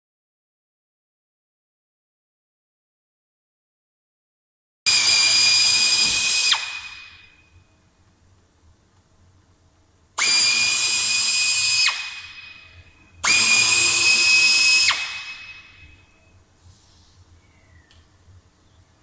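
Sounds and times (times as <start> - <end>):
power drill whining: 4.9 - 7.4, 10.2 - 16.0.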